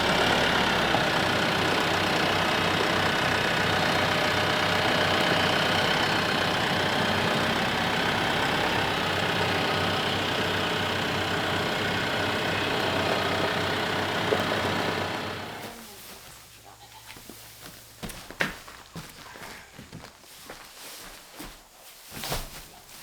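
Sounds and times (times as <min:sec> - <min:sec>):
tractor engine running: 0:00.0 - 0:15.9.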